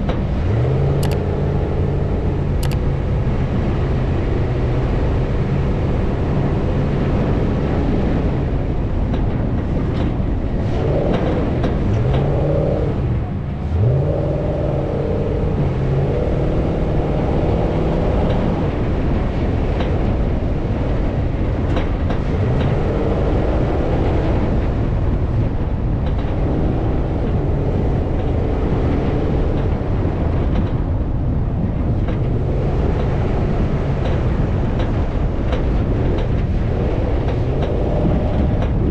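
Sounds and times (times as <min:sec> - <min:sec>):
off-road vehicle engine revving: 0:00.0 - 0:38.9
wind noise on microphone: 0:00.0 - 0:38.9.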